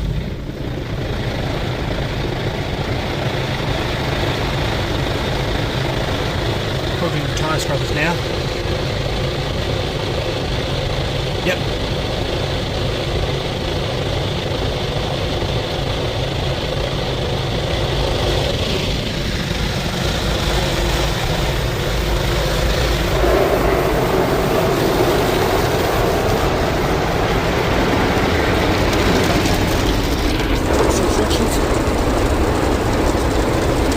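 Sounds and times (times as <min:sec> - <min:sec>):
car wash brushes spinning: 0:17.0 - 0:33.9
water spraying: 0:20.0 - 0:33.9.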